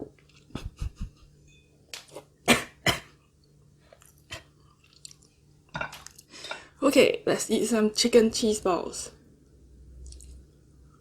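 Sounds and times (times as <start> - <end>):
chewing: 3.9 - 6.3.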